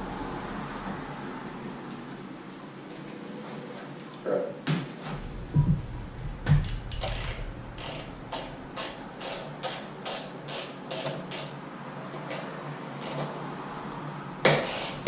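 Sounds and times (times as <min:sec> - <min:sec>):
low knocks: 0:05.2 - 0:09.2.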